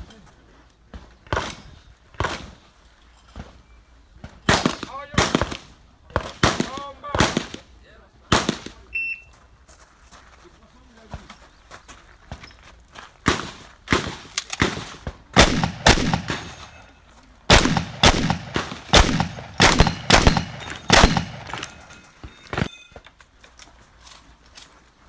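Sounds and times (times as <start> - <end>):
shotgun shots with echo: 4.5 - 7.6, 8.3 - 8.8, 13.3 - 16.8, 17.5 - 22.0
faint ringing: 20.4 - 23.3.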